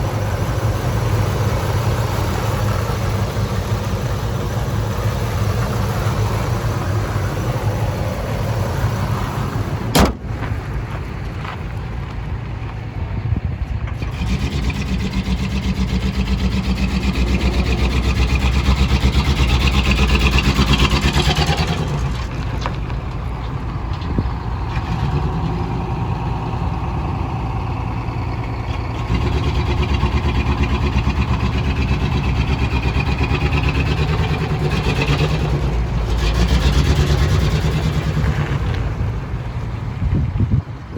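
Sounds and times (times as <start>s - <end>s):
truck engine idling and revving: 0.0s - 40.9s
sharp knock: 9.9s - 10.3s.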